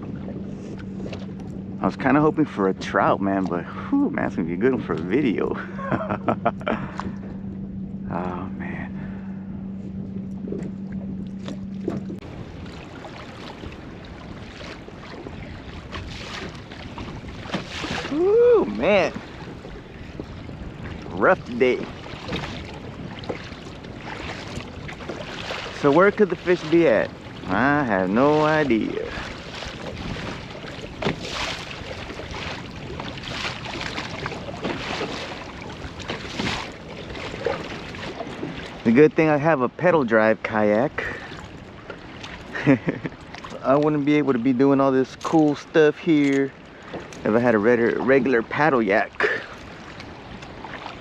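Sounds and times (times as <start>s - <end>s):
wind on microphone: 0.0s - 38.9s
steady low hum: 0.0s - 39.0s
water lapping against hull: 0.0s - 51.0s.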